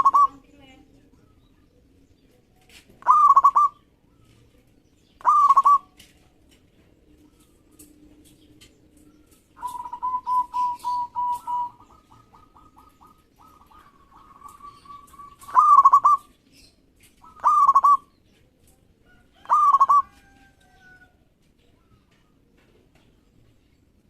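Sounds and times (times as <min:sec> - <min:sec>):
dove cooing: 0:00.0 - 0:00.5, 0:03.0 - 0:06.2, 0:06.8 - 0:16.4, 0:17.1 - 0:18.2, 0:19.0 - 0:21.0.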